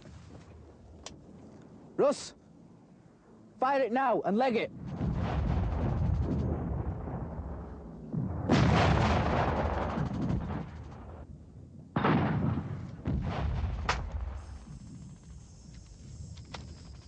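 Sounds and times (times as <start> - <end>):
explosion bangs rumbling: 4.7 - 11.3, 12.0 - 14.4
gunfire: 8.4 - 11.3, 12.0 - 14.8.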